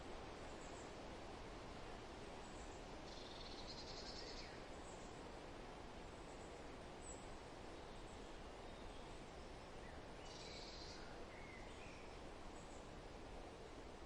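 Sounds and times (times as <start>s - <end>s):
wind rustling through forest: 0.0s - 14.0s.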